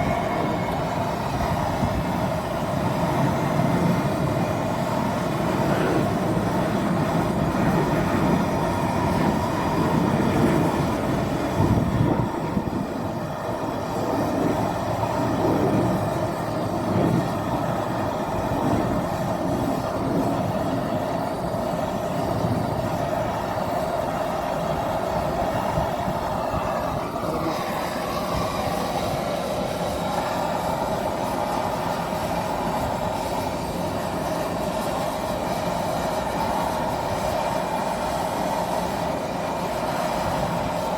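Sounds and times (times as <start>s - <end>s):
machine running with hum: 0.0s - 40.9s.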